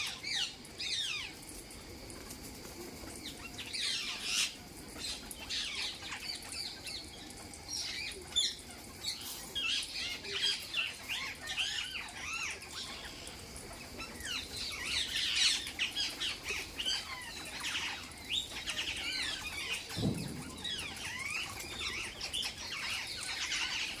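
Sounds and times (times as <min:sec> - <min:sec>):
parrots squawking and chattering: 0:00.0 - 0:01.6, 0:03.2 - 0:24.0
low thump: 0:19.9 - 0:21.1.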